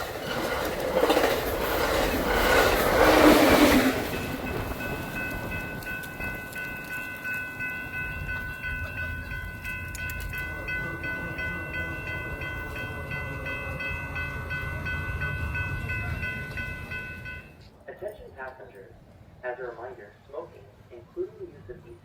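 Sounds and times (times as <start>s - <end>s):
train rumbling by: 0.0s - 17.6s
high-pitched multi-tone ringing: 4.0s - 17.6s.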